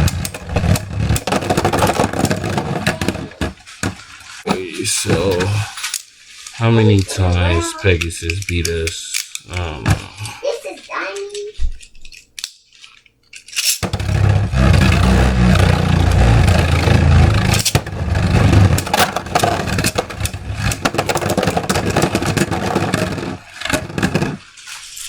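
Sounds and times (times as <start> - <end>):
clacks of colliding tops: 0.0 - 6.1, 13.5 - 24.6
spinning tops grinding whir: 0.0 - 7.9, 13.8 - 24.4.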